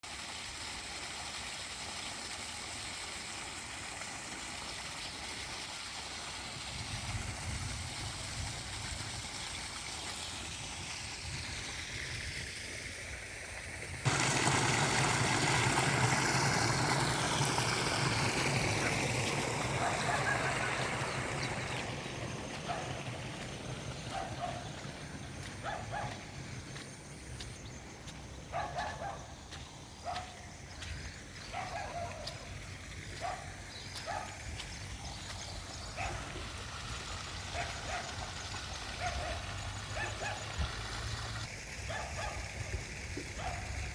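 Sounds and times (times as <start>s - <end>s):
running rainwater: 0.0s - 43.9s
steady rain: 14.0s - 21.1s.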